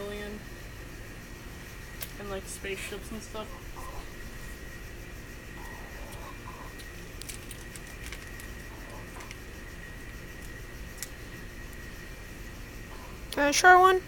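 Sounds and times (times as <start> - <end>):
faint high hum: 0.0 - 14.0
low background rumble: 0.0 - 14.0
plastic candy bag crackling: 6.8 - 9.5.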